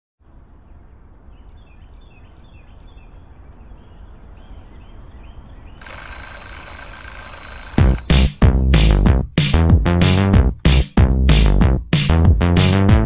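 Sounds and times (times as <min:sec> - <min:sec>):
birds chirping: 0:00.2 - 0:06.6.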